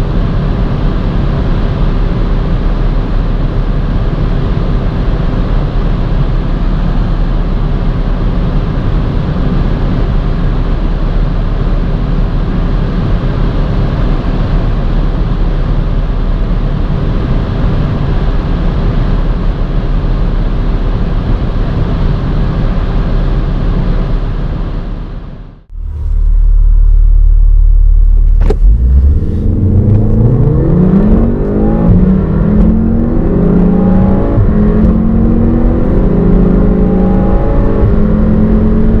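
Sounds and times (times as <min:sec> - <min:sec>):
road and wind noise: 0:00.0 - 0:39.0
low hum: 0:22.8 - 0:39.0
car engine accelerating hard: 0:25.7 - 0:39.0.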